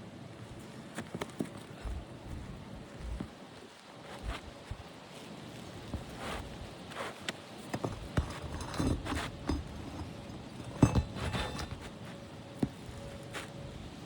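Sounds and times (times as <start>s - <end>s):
scraping on shingle roof: 5.6s - 13.9s.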